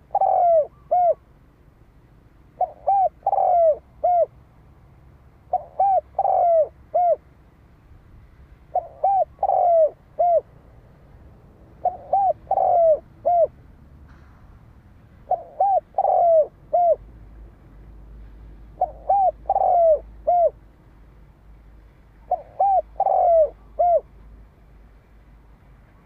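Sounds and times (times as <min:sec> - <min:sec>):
dove cooing: 0:00.0 - 0:01.2, 0:02.6 - 0:04.3, 0:05.5 - 0:07.2, 0:08.7 - 0:10.6, 0:11.8 - 0:13.6, 0:15.3 - 0:17.1, 0:18.8 - 0:20.6, 0:22.3 - 0:24.1.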